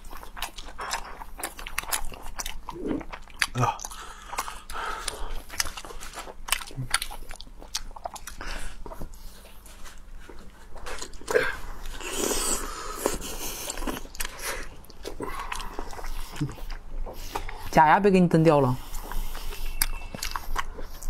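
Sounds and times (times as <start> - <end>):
people chewing shellfish: 0.0 - 21.0
wet mouth clicks and smacks: 18.9 - 21.0.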